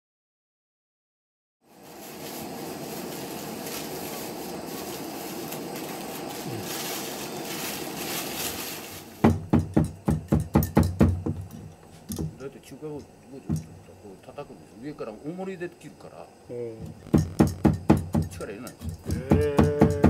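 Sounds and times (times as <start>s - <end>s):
cleaver chopping on cutting board: 17.0s - 20.0s.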